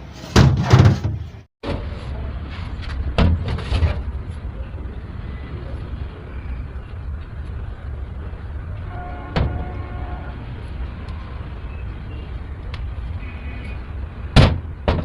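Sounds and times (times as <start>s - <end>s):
engine running low rumble: 1.8s - 14.8s.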